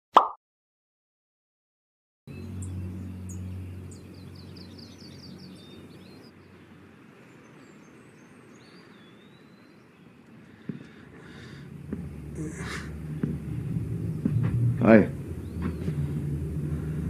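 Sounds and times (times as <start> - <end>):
steady low rumble: 2.3 - 7.2, 10.8 - 17.0
birds chirping: 2.3 - 17.0
bird whistle gliding: 2.4 - 6.6, 7.4 - 10.3.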